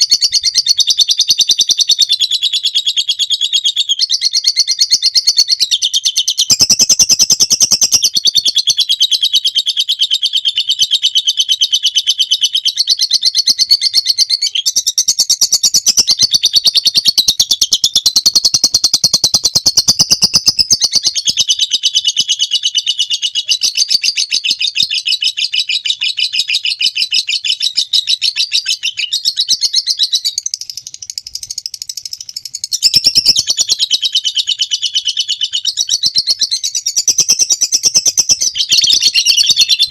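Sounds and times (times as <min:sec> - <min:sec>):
lovebird shrill chatter: 0:27.9 - 0:39.9.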